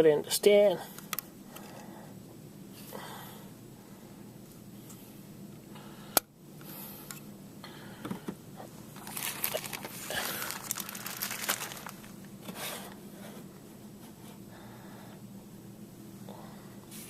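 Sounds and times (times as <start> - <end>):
plastic crinkling and rustling: 9.0 - 12.4.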